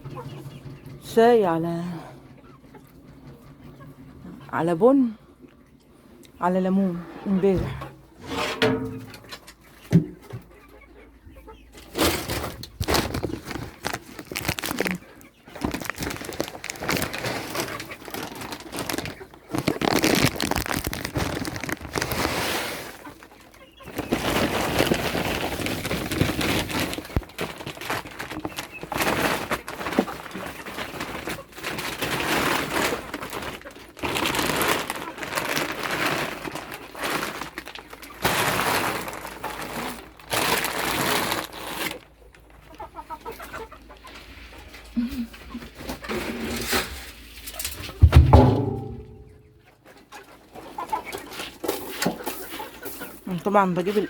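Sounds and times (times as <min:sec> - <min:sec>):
dry feed stirred by hand: 0:15.7 - 0:23.1.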